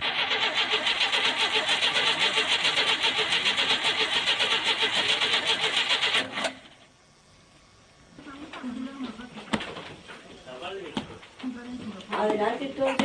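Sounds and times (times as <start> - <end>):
petrol engine running: 0.0 - 6.8.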